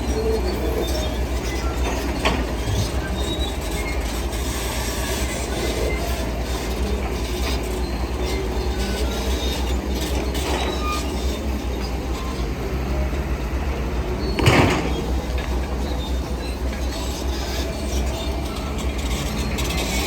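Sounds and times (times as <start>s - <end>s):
heavy diesel machinery rumbling: 0.0s - 20.0s
metallic clanks and squeals: 0.0s - 20.0s
loud bang: 14.3s - 15.6s.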